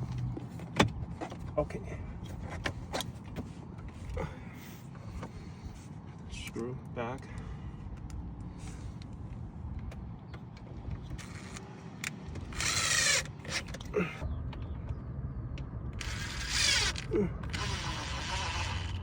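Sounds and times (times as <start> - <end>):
electric screwdriver whirring: 12.4 - 13.8, 16.0 - 19.0.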